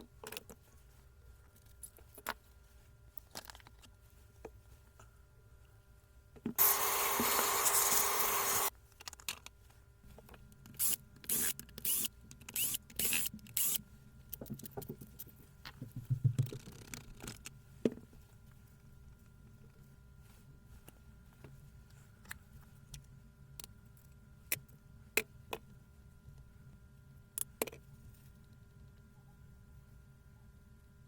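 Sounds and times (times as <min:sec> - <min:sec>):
pressurised spray hissing: 0:06.6 - 0:08.7.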